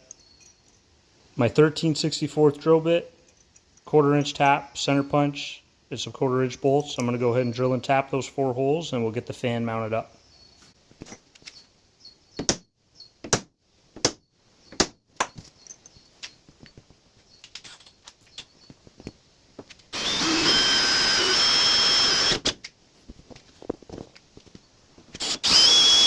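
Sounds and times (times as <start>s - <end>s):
power drill whining through metal: 19.9s - 22.6s, 25.2s - 26.0s.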